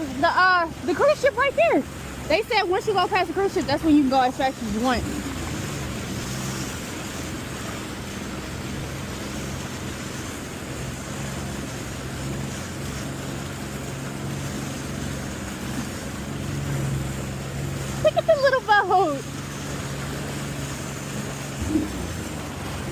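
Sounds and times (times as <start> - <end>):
jet ski engine running: 0.0 - 22.9
water rushing along hull: 0.0 - 22.9.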